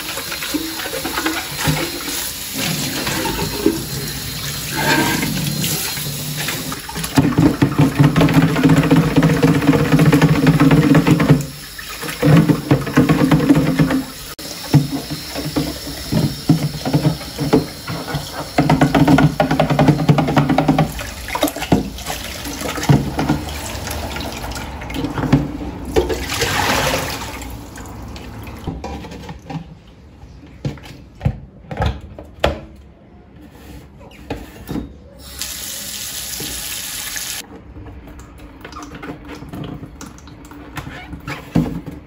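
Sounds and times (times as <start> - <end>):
tap water running into sink: 0.0 - 29.6, 35.3 - 37.4.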